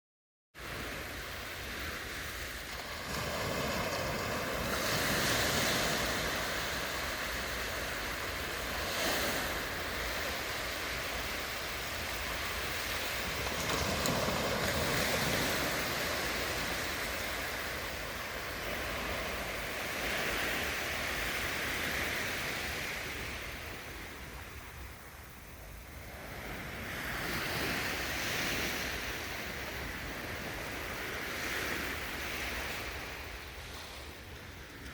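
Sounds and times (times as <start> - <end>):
sea waves breaking on shore: 0.6 - 34.9
wind buffeting microphone: 2.5 - 24.0.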